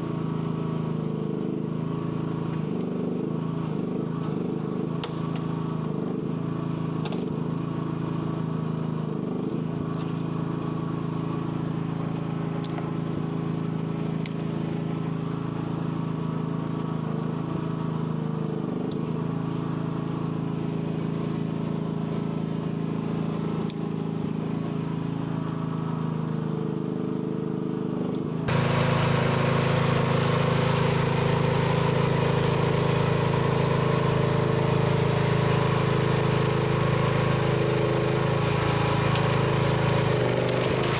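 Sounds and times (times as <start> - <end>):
excavator engine running: 28.5 - 40.9.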